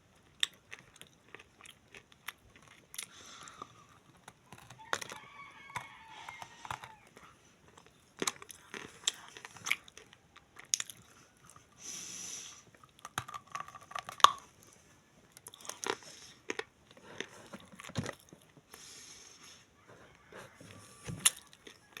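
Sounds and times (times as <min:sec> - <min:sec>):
clay being crunched and chewed: 0:00.2 - 0:11.8, 0:12.7 - 0:18.6, 0:21.1 - 0:22.0.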